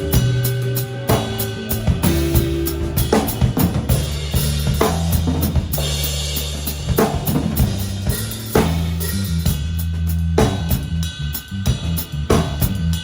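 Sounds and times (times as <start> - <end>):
band playing: 0.0 - 9.3
drum kit: 0.0 - 13.0
electric bass notes: 0.0 - 13.0.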